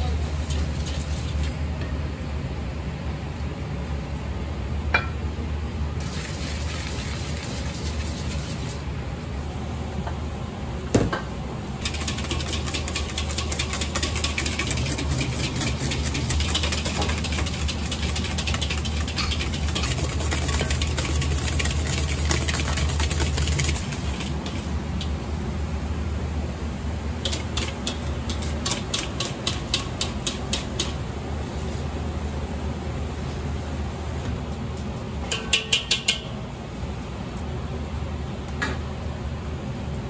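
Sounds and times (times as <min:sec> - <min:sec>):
low kitchen hum: 0:00.0 - 0:40.0
wire whisk scraping metal bowl: 0:11.8 - 0:24.7.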